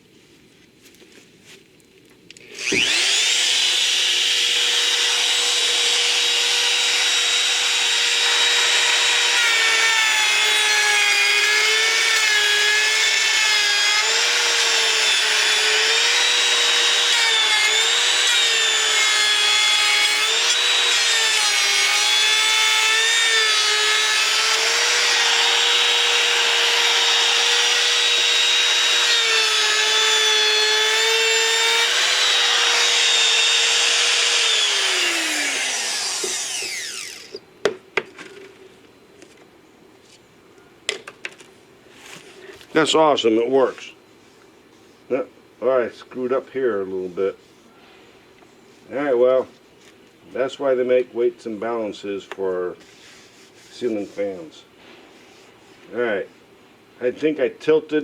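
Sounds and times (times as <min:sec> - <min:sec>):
electric router whining: 0:02.4 - 0:37.4.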